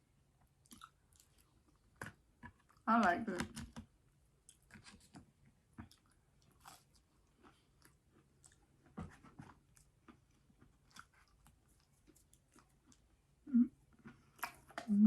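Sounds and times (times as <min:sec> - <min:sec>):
chewing food with mouth smacks: 0:00.6 - 0:02.8, 0:03.4 - 0:13.2, 0:13.9 - 0:15.0.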